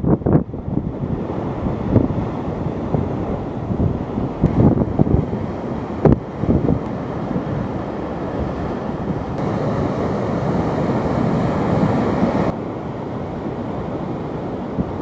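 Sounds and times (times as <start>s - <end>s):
wind buffeting microphone: 0.0s - 15.0s
rushing roar of storm: 1.2s - 12.6s.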